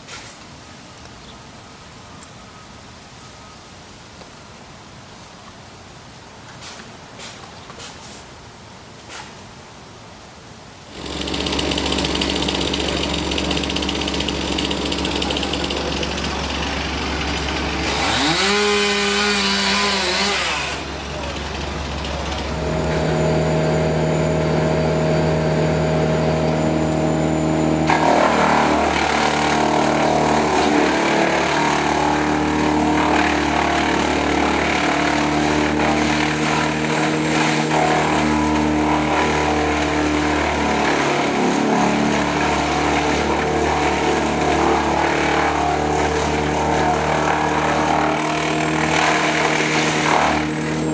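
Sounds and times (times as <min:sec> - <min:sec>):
rough noisy sound: 0:10.9 - 0:50.9
engine running steadily: 0:11.0 - 0:17.9, 0:20.8 - 0:50.9.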